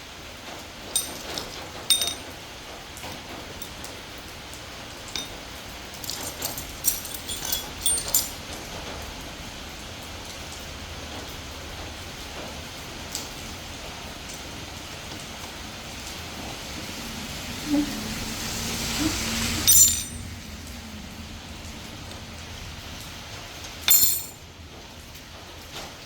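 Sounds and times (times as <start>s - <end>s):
metal parts clinking: 0.9s - 2.3s, 5.1s - 8.6s, 19.6s - 20.2s, 23.9s - 24.4s.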